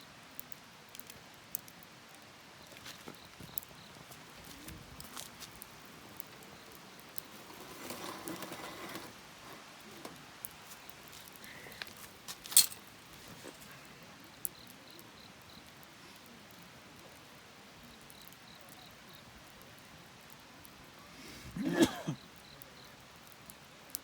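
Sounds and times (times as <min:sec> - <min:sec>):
campfire crackling: 0:00.0 - 0:24.0
soft rustle: 0:02.6 - 0:13.9.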